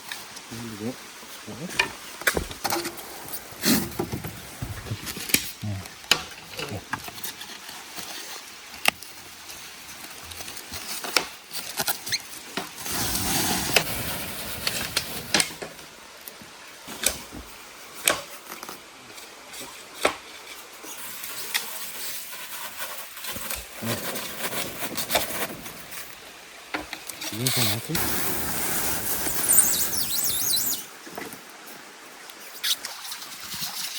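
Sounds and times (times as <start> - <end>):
bamboo knocks and cracks: 2.2 - 2.9
rustling rush: 12.8 - 15.8.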